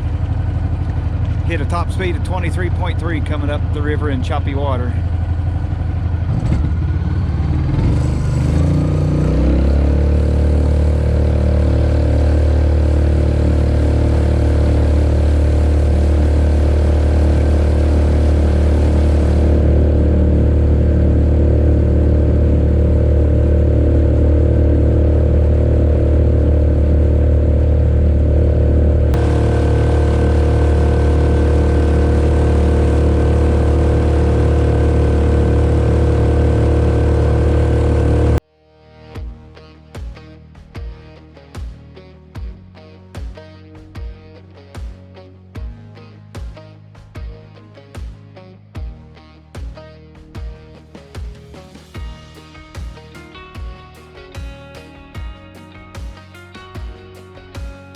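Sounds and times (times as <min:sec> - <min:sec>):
jet kayak engine revving: 0:00.0 - 0:38.4.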